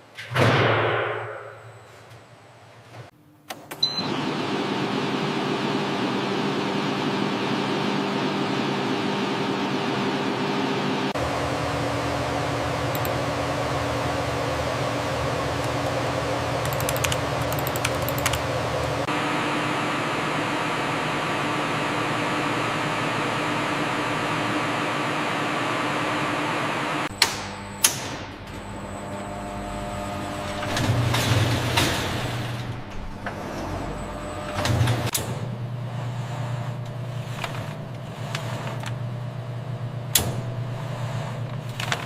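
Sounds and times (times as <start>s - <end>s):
mechanical hum of machinery: 0.0s - 42.0s
sharp clicks: 16.6s - 18.4s.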